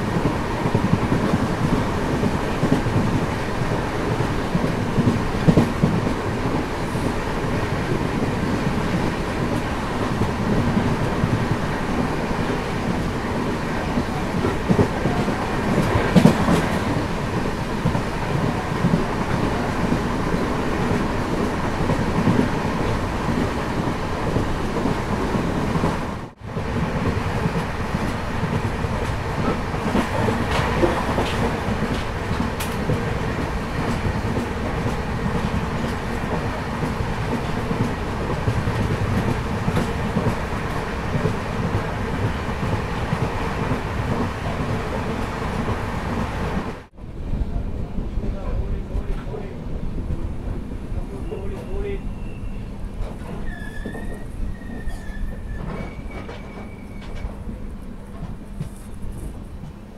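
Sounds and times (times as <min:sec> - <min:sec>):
train rumbling on track: 0:00.0 - 0:59.9
wheels clacking over rail joints: 0:26.9 - 0:46.8.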